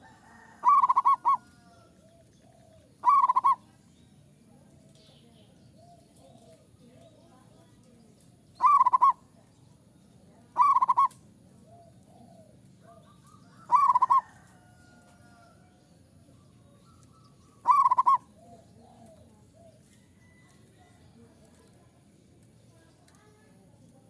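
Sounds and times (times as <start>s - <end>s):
dove cooing: 0.0s - 3.7s, 8.6s - 9.3s, 10.6s - 14.6s, 17.1s - 19.8s.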